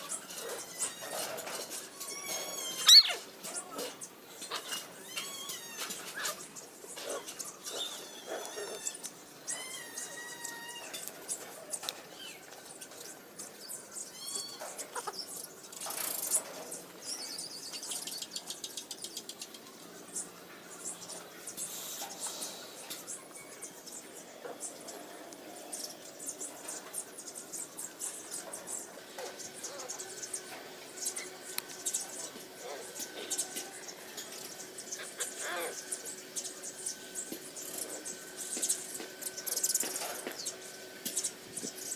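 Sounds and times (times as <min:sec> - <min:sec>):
puppies whimpering and squeaking: 0:00.0 - 0:12.4, 0:14.1 - 0:15.2.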